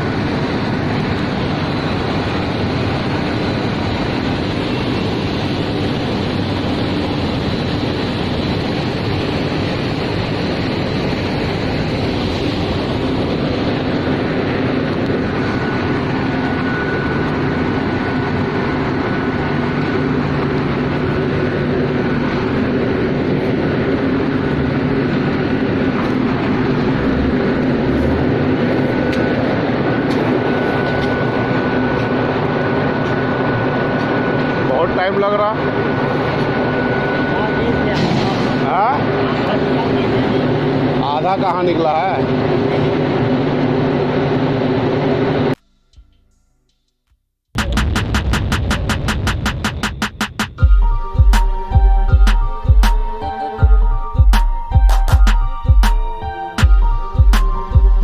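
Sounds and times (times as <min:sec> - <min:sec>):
truck engine hum: 0:00.0 - 0:45.8
thin steady whine: 0:00.0 - 0:47.0, 0:47.6 - 0:58.0
unloading machinery running: 0:37.7 - 0:45.5.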